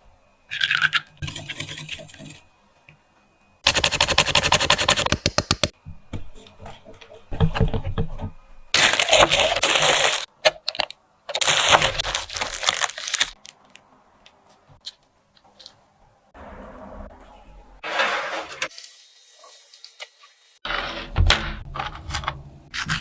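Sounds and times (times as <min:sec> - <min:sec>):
crinkling and crunching: 0:08.7 - 0:15.8
snack packaging crackling: 0:08.8 - 0:15.0.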